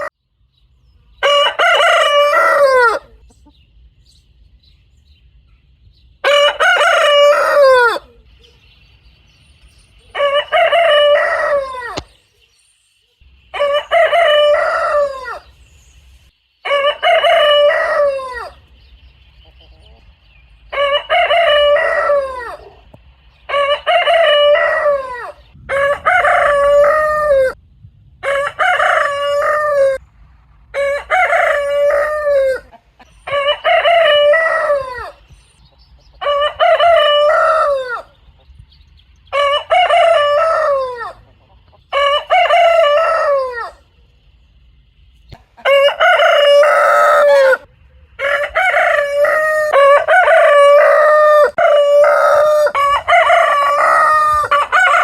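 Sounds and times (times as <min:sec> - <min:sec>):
rooster crowing: 0:01.2 - 0:03.2, 0:06.2 - 0:08.3, 0:10.1 - 0:12.1, 0:13.5 - 0:15.6, 0:16.6 - 0:18.6, 0:20.7 - 0:22.9, 0:23.5 - 0:27.6, 0:28.2 - 0:30.0, 0:30.7 - 0:35.2, 0:36.2 - 0:38.2, 0:39.3 - 0:41.3, 0:41.9 - 0:43.9, 0:45.6 - 0:55.0.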